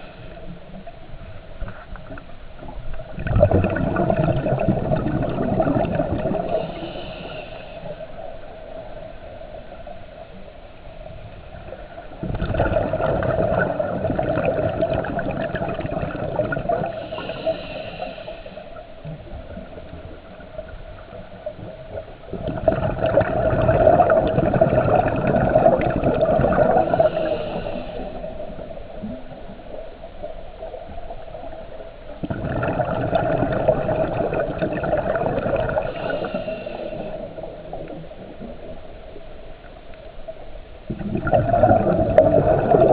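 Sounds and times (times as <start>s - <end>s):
diver exhaling bubbles: 3.1s - 7.3s, 11.7s - 18.2s, 22.3s - 29.8s, 32.2s - 38.8s, 40.9s - 42.9s
regulator breathing underwater: 6.0s - 8.6s, 16.4s - 19.1s, 23.8s - 29.1s, 32.2s - 38.4s.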